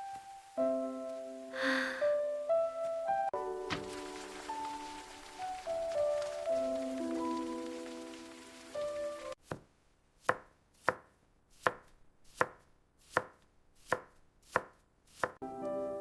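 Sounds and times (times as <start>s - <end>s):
knife chopping on cutting board: 10.2s - 15.4s.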